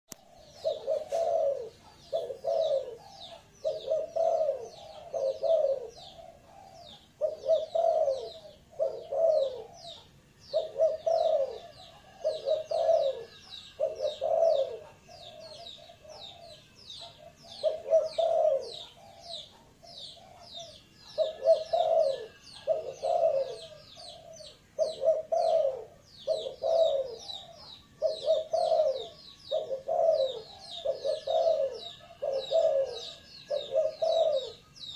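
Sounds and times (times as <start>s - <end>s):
dove cooing: 0.1s - 34.9s.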